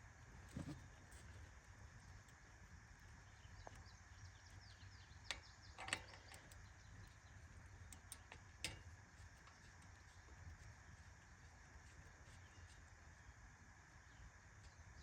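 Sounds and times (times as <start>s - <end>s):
faint bird chirps: 3.1s - 8.3s, 9.4s - 15.0s
faint clicks of bolts spun off: 3.3s - 12.9s.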